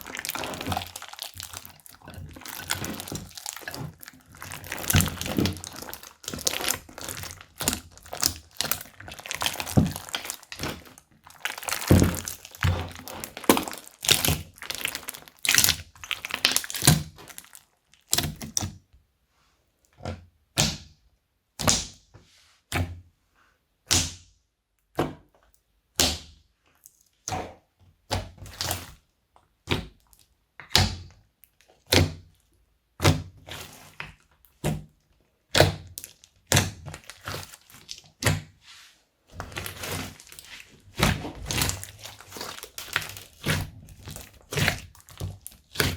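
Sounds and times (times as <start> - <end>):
slime popping: 0.0 - 18.6, 39.4 - 45.9
sticky slime clicks and crackles: 0.0 - 18.6, 39.4 - 45.9.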